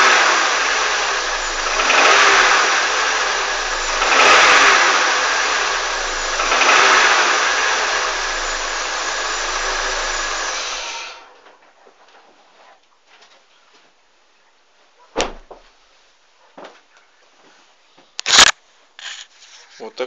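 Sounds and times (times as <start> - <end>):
car engine revving: 0.0 - 11.2.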